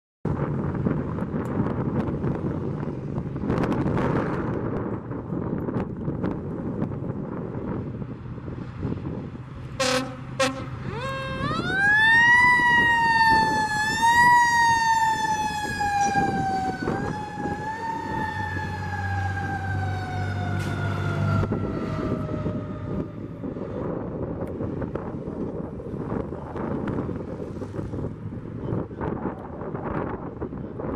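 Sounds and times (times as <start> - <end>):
truck engine rumbling: 0.3 - 30.9
fire truck horn blasts: 9.8 - 11.7.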